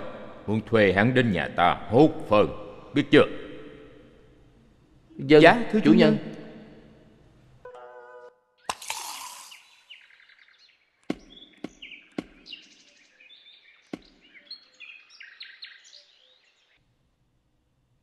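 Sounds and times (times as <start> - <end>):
small birds chirping: 8.7 - 16.8
sharp knocks: 11.1 - 12.5.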